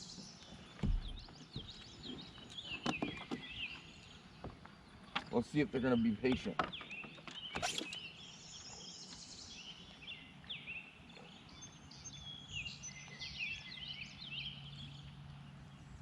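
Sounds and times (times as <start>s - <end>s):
songbirds singing and chirping: 0.0s - 16.0s.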